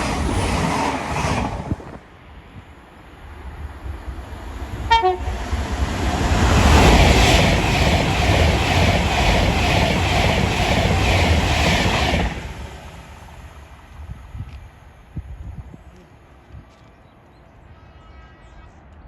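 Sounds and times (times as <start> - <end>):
train passing at speed: 0.0 - 16.5
train horn toot: 4.9 - 5.4.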